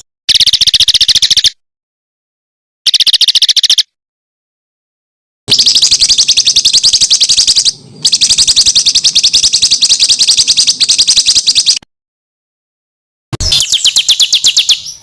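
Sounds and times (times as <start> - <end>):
songbird rapid sharp trill: 0.0 - 1.6, 2.9 - 4.0, 5.5 - 11.8, 13.4 - 15.0.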